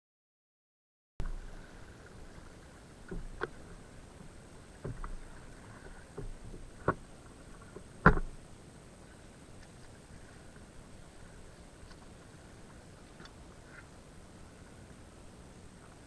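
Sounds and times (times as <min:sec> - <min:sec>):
knocks and thumps on kayak: 0:03.1 - 0:03.6, 0:04.8 - 0:08.4.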